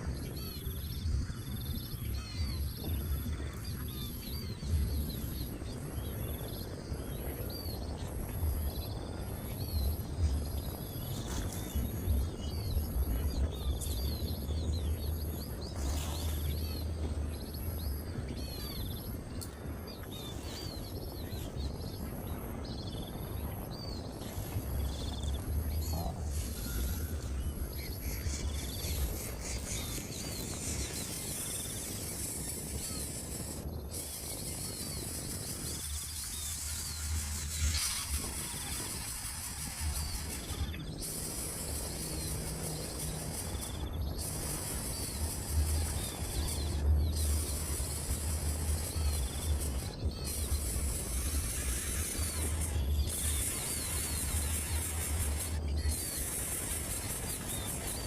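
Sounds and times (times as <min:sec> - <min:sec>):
high pulsing buzz: 0:00.0 - 0:58.0
wind rumble on microphone: 0:00.0 - 0:58.0.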